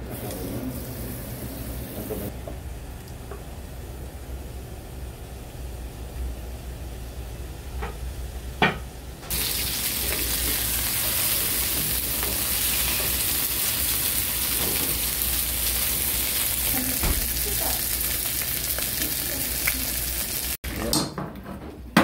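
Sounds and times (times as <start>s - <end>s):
food sizzling in a hot pan: 9.3s - 20.6s.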